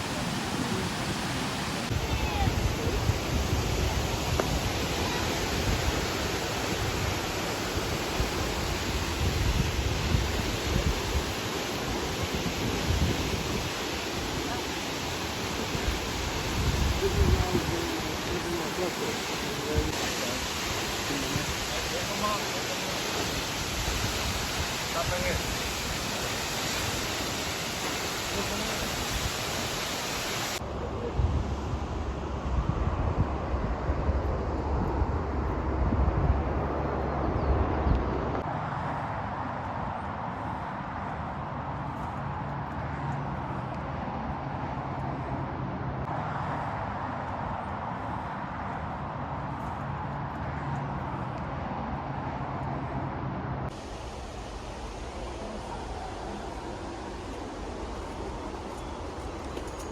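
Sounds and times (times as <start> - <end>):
waterfall rushing: 0.0 - 30.6, 53.7 - 59.9.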